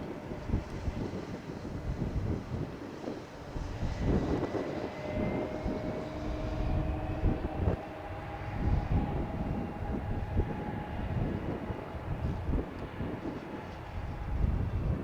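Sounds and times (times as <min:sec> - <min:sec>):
jet engines whining: 0:00.0 - 0:15.0
low rumble: 0:00.0 - 0:15.0
wind buffeting microphone: 0:00.0 - 0:15.0.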